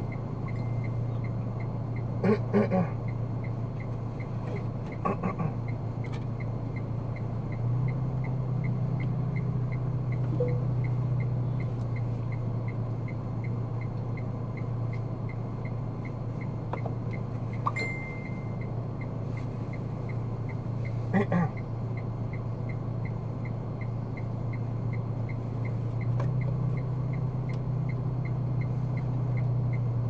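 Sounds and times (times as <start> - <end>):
car engine and road hum: 0.0 - 30.0
short high beep: 10.4 - 10.8, 17.7 - 18.7.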